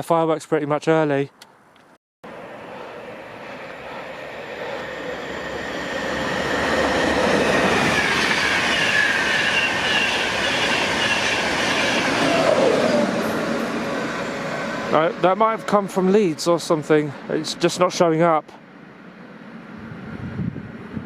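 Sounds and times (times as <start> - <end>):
train rail noise: 2.2 - 21.0
train whining tones: 2.3 - 17.3.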